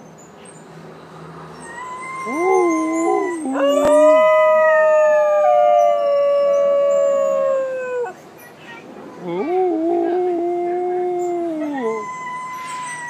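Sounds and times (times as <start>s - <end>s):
dogs howling: 1.6s - 8.2s, 9.4s - 13.0s.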